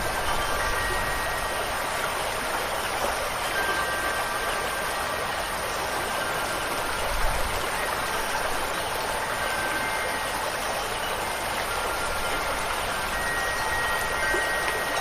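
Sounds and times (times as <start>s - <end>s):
rain: 0.0s - 15.0s
running water: 0.0s - 15.0s
wind chime tones: 0.0s - 15.0s.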